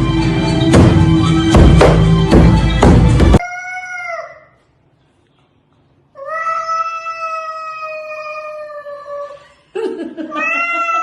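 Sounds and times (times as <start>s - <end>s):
cat meowing: 10.4s - 11.0s.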